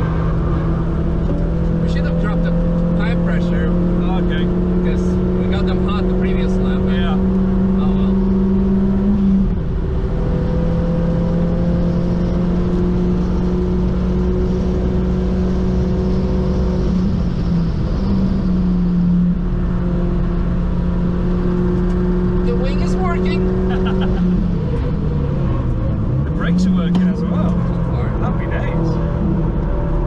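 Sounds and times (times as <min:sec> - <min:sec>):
car engine under hard driving: 0:00.0 - 0:30.0.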